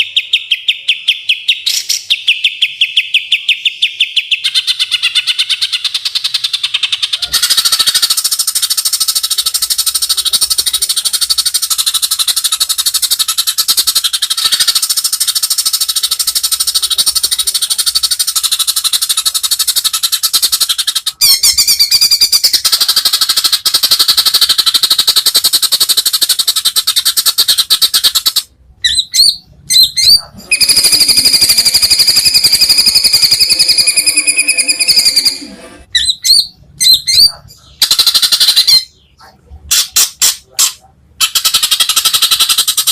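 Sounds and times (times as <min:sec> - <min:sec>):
bird whistle: 0:28.9 - 0:38.9
bird rattling trill: 0:30.5 - 0:35.4.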